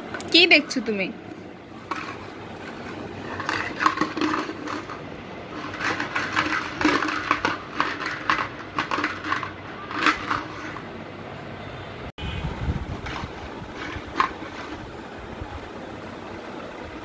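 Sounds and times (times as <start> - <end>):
small hard objects clattering: 1.8 - 10.9.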